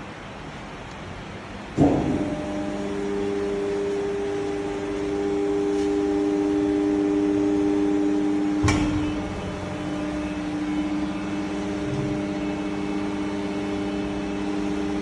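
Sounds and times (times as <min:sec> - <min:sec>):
bending machine humming: 0:01.2 - 0:15.0
machine clunk: 0:01.8 - 0:02.7, 0:08.6 - 0:10.8.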